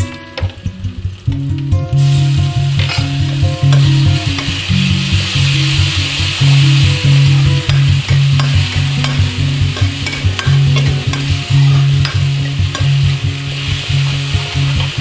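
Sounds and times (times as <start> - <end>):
food sizzling in oil: 0.0 - 15.0
spoon ticking against pan: 2.8 - 13.4.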